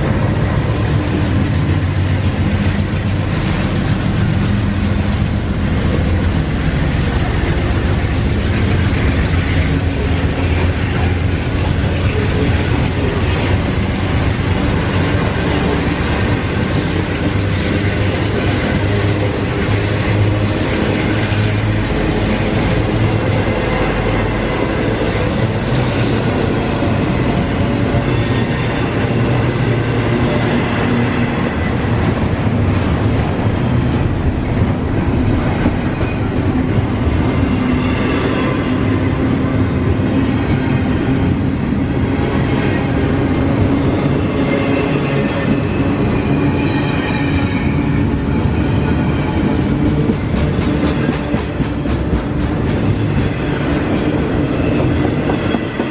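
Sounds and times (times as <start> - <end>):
freight train wheels on rails: 0.0 - 55.9.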